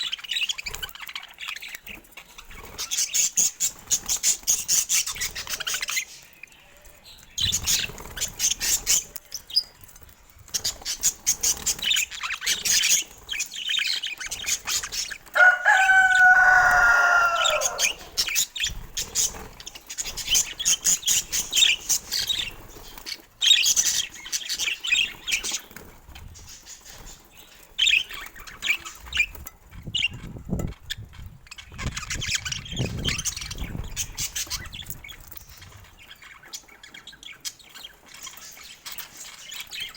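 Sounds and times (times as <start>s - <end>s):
loud wavering bird call: 15.4s - 18.2s.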